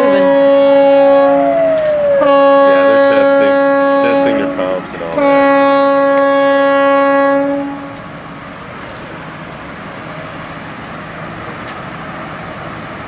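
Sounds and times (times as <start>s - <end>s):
ship's horn blast: 0.0s - 8.1s.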